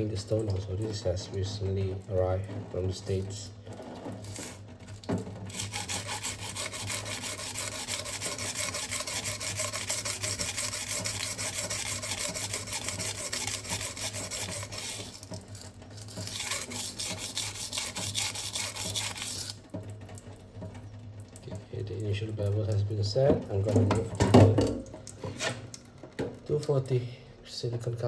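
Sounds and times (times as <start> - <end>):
knife scraping on whetstone: 5.5 - 15.2, 16.0 - 19.6.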